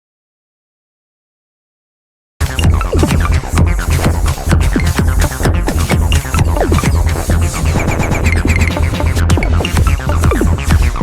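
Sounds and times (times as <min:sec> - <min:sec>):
electronic dance music: 0:02.4 - 0:11.0
falling synth notes: 0:02.4 - 0:11.0
heavy pulsing bass: 0:02.4 - 0:11.0.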